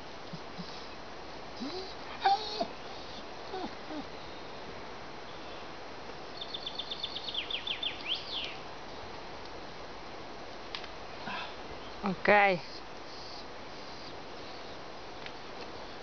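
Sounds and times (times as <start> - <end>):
outdoor background hiss: 0.0 - 16.0
songbird singing: 5.2 - 9.1, 11.7 - 16.0.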